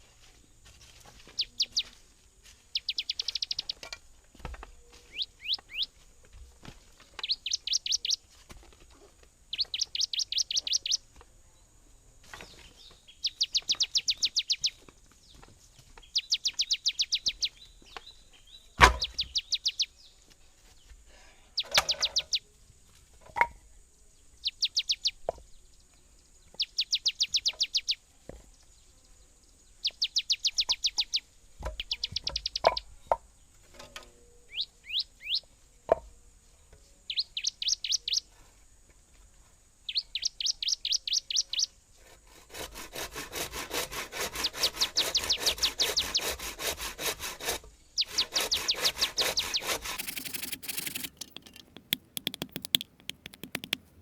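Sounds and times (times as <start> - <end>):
songbird trilling: 2.8 - 3.8, 5.1 - 5.9, 7.2 - 8.2, 9.5 - 11.0, 48.0 - 53.9.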